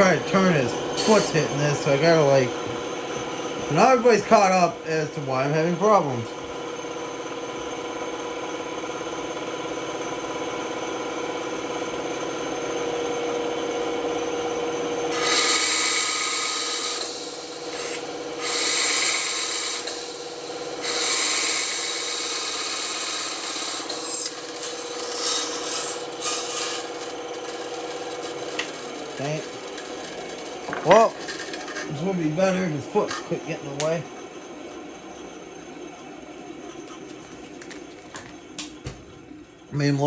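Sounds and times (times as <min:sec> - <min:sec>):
saw blade cutting wood: 0:00.0 - 0:02.5, 0:15.1 - 0:34.1
band saw humming: 0:00.0 - 0:40.0.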